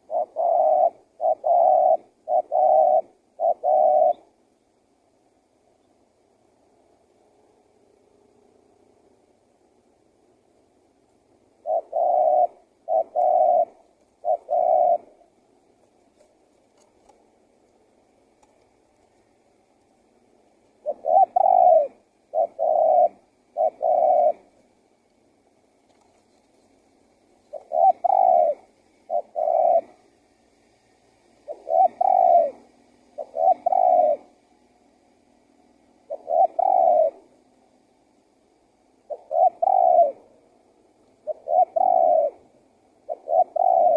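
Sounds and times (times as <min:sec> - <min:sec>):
dove cooing: 0:00.0 - 0:04.4, 0:11.5 - 0:15.4, 0:20.7 - 0:24.7, 0:27.3 - 0:30.2, 0:31.4 - 0:34.7, 0:35.6 - 0:37.5, 0:39.0 - 0:43.9.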